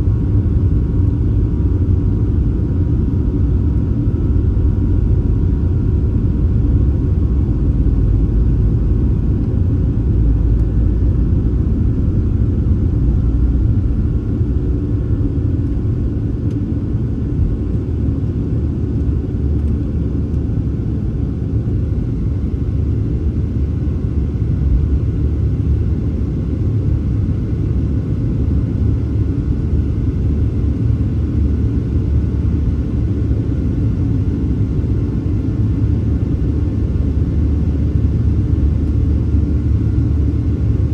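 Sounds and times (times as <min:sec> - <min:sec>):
jet engine cabin rumble: 0:00.0 - 0:40.9.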